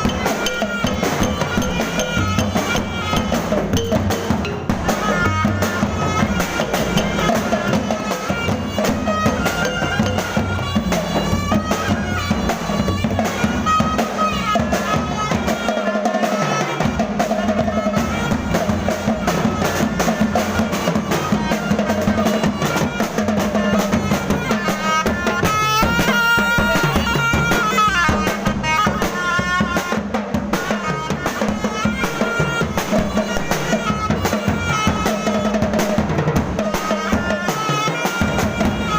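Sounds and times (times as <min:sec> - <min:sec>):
drums and percussion beat: 0:00.0 - 0:38.9
reedy wind melody: 0:00.0 - 0:38.9.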